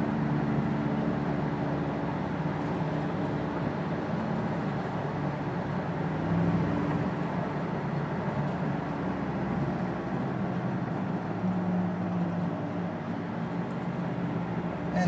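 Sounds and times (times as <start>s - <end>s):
road noise: 0.0s - 15.0s
low hum inside car: 14.0s - 15.0s.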